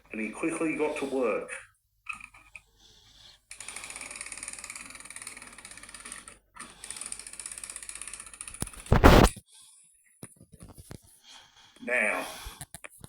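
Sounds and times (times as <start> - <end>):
toy train motor clicking rattle: 2.1 - 8.9.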